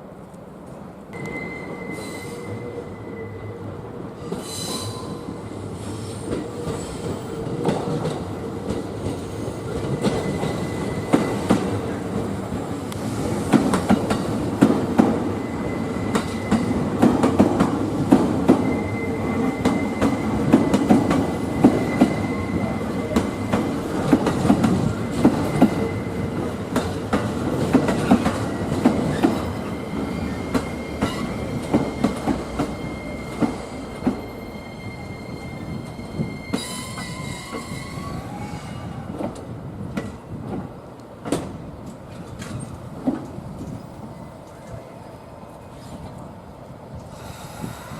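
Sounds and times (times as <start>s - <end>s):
running train noise: 0.0s - 47.9s
high wheel squeal: 1.2s - 3.5s, 18.6s - 20.5s, 21.4s - 23.7s, 29.1s - 39.0s.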